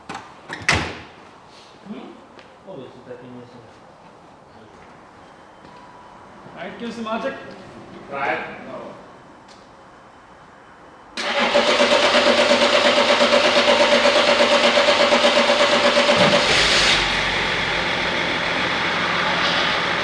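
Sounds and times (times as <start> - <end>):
diesel engine revving and running: 11.2 - 20.0
diesel engine starter cranking: 11.2 - 20.0.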